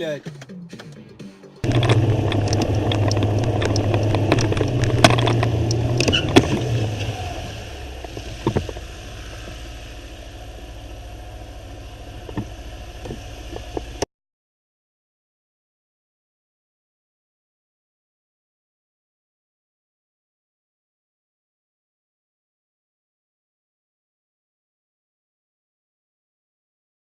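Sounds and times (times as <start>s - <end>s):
vehicle engine and road noise: 0.0s - 14.1s
knocks and clicks: 0.2s - 7.0s, 8.0s - 8.9s, 12.2s - 14.1s.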